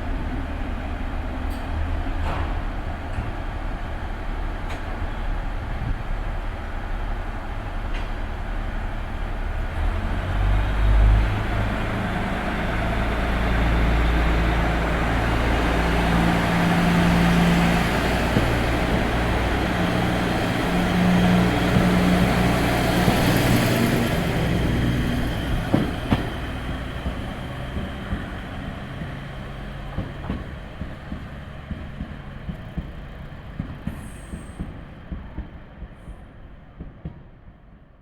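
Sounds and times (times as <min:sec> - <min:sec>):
diesel railcar engine running: 0:00.0 - 0:37.7.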